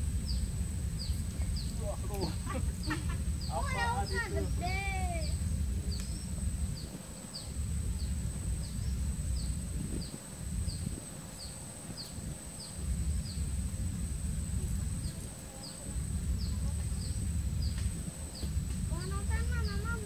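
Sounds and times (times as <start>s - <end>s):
high insect whine: 0.0s - 20.0s
wind rumble on microphone: 0.0s - 20.0s
bird chirping: 0.2s - 13.5s.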